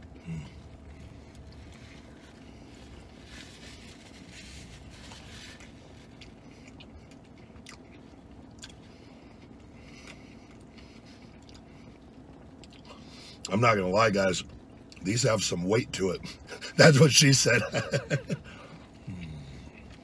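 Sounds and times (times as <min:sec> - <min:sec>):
man chewing food: 0:00.0 - 0:13.5, 0:18.0 - 0:20.0.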